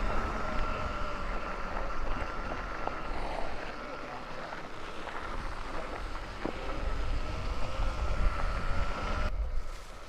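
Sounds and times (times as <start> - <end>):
electric motor whine: 0.0 - 10.0
wind rumble on microphone: 4.7 - 10.0.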